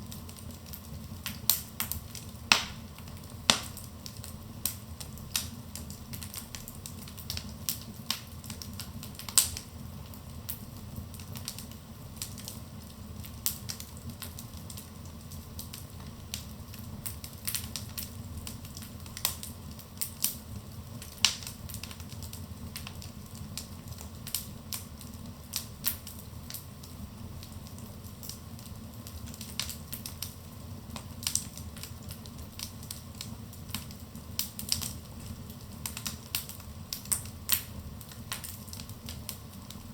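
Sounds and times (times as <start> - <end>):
fire popping and snapping: 0.0 - 39.9
low rumble of flames: 0.0 - 39.9
wood fire crackling: 0.0 - 39.9.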